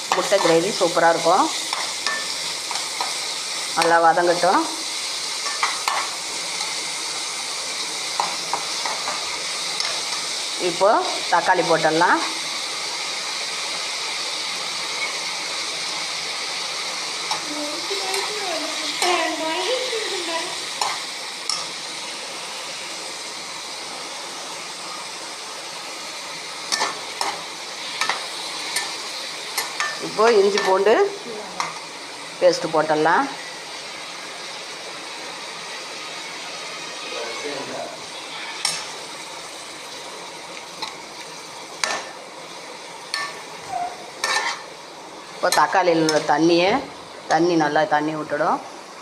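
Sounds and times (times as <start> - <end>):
onions and tomatoes sizzling in oil: 0.0 - 49.0
spoon scraping through frying food: 0.1 - 4.0, 5.0 - 11.3, 20.7 - 21.8, 26.6 - 30.9, 38.0 - 42.2, 43.0 - 46.3.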